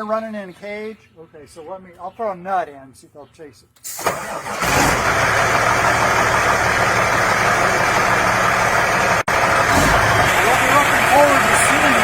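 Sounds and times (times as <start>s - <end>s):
truck engine idling: 4.2s - 12.0s.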